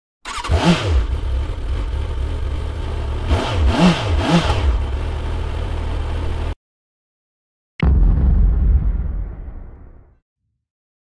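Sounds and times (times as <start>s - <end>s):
motorcycle engine idling and revving: 0.3s - 6.6s.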